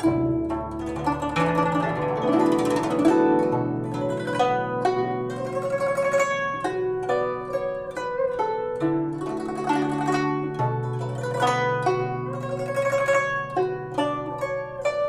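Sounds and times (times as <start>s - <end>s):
plucked zither melody: 0.0s - 15.0s.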